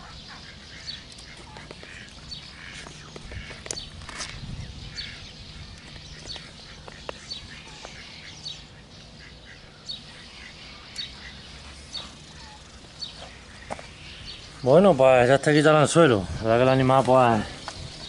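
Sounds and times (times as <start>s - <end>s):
birds calling: 0.0s - 18.0s.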